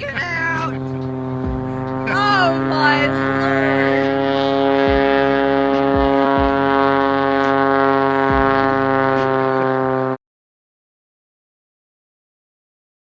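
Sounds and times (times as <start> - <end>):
aircraft engine droning: 0.0 - 10.2.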